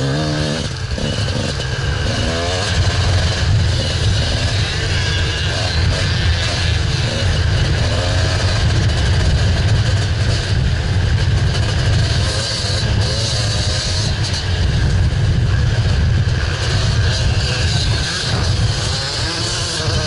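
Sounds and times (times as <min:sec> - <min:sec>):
dirt bike engine running: 0:00.0 - 0:20.0
wind rumble on microphone: 0:00.0 - 0:20.0.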